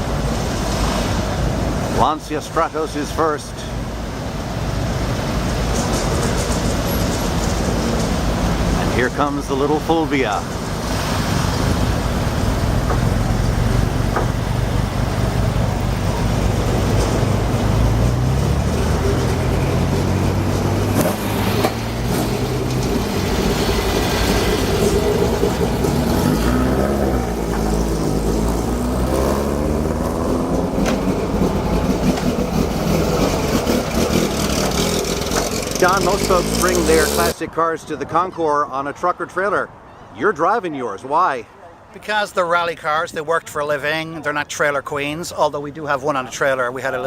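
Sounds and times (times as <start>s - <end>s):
rally car engines passing: 0.0s - 37.4s.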